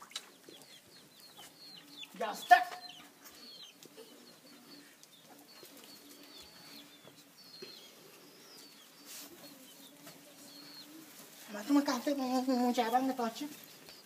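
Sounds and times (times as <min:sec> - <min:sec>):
low repeated cooing: 0:03.0 - 0:11.4.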